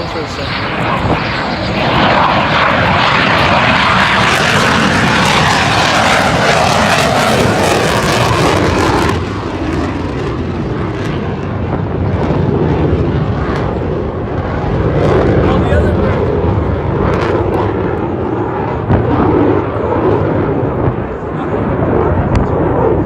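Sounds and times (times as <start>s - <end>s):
jet fighter flyby roar: 0.0s - 23.0s.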